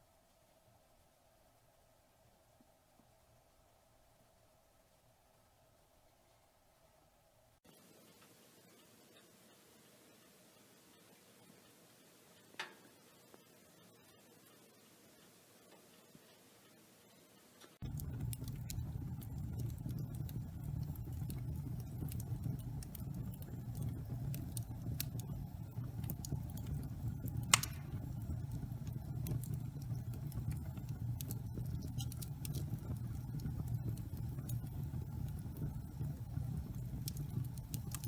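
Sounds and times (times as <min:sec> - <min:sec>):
faint hiss: 0:00.0 - 0:20.8
wood fire crackling: 0:17.8 - 0:38.0
loud pop from fire: 0:27.5 - 0:28.1.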